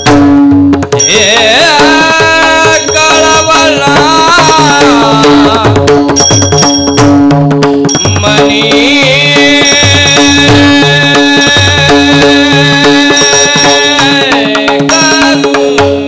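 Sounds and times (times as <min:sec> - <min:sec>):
hand drum strokes: 0:00.0 - 0:16.0
hand cymbals clinking: 0:01.0 - 0:01.4, 0:06.1 - 0:07.2, 0:07.8 - 0:08.6, 0:13.1 - 0:14.3, 0:14.9 - 0:15.6
person singing melodic line: 0:01.0 - 0:06.0, 0:08.0 - 0:16.0.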